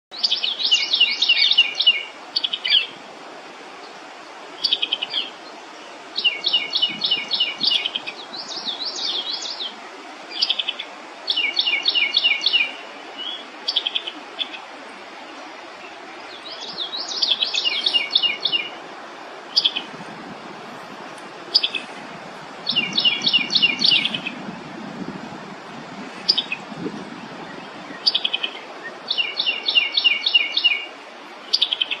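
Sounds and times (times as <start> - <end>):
songbird trilling: 16.3 - 18.7, 19.5 - 19.9, 21.5 - 21.9, 22.6 - 24.4, 27.5 - 30.9.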